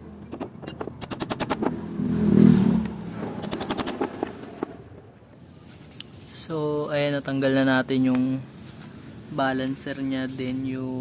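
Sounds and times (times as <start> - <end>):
rapid sharp clicks: 0.3 - 1.7, 3.4 - 4.3
metal parts and tools clattering: 5.4 - 11.0.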